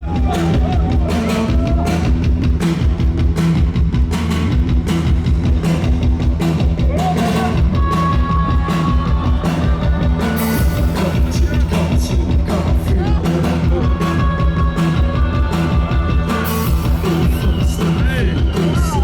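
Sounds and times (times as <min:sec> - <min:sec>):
rock band playing live: 0:00.0 - 0:19.0
steady drum beat: 0:00.0 - 0:19.0.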